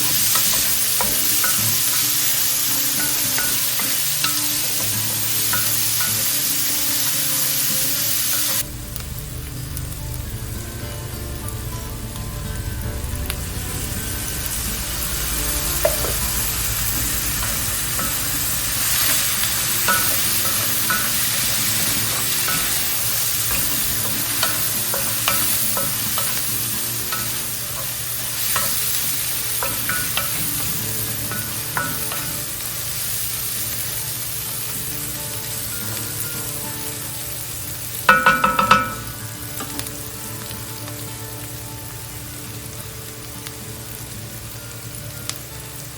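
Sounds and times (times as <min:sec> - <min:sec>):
food sizzling in skillet: 0:00.0 - 0:45.9
utensil scraping and tapping pan: 0:38.1 - 0:39.8.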